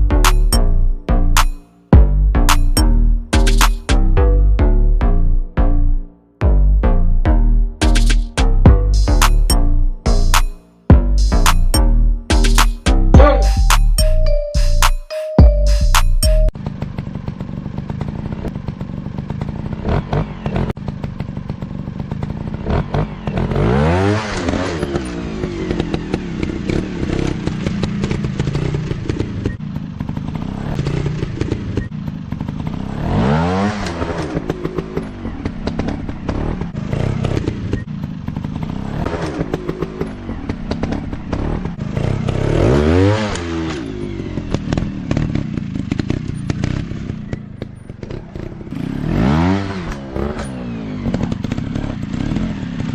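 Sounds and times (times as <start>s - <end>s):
engine clattering: 16.5s - 52.9s
dirt bike engine revving: 16.6s - 52.9s.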